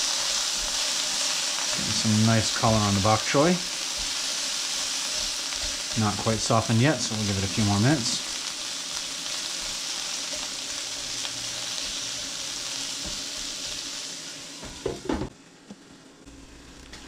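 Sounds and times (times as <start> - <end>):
spatula stirring: 0.0 - 6.5, 8.2 - 13.9
food sizzling in a skillet: 0.0 - 15.3.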